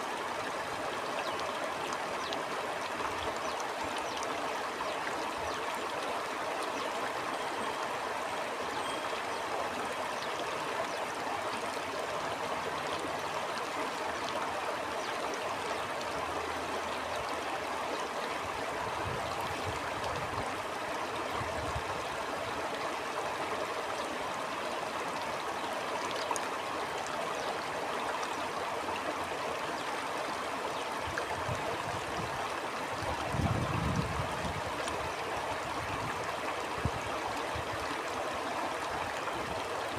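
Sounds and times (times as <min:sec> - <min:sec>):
stream water flowing: 0:00.0 - 0:39.9
low gusts of wind: 0:18.4 - 0:22.6, 0:31.0 - 0:38.0.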